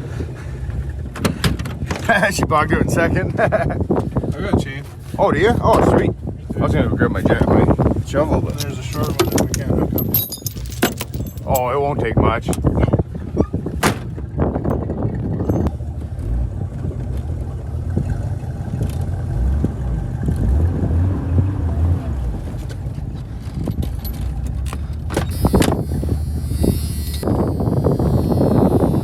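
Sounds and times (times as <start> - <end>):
vehicle engine idling: 13.0 - 20.4.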